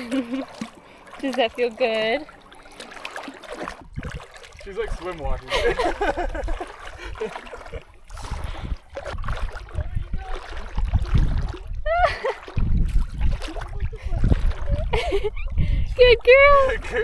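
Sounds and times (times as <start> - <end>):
water splashing and sloshing: 0.0 - 17.0
low rumbling on microphone: 3.8 - 4.3, 4.9 - 17.0.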